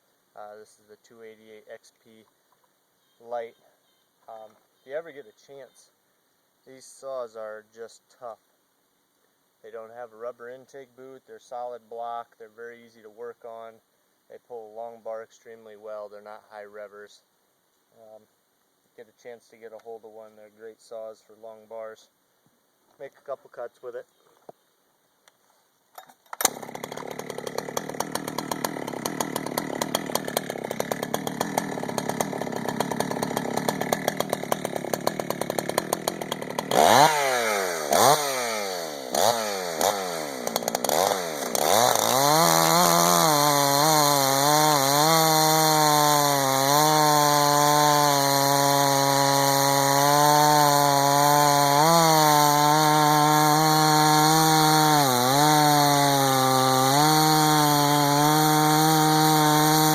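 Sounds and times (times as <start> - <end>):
chainsaw revving: 26.4 - 59.9.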